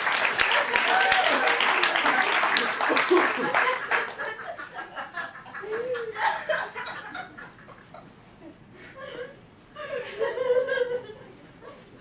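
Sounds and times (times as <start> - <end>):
audience laughing: 0.5 - 8.3.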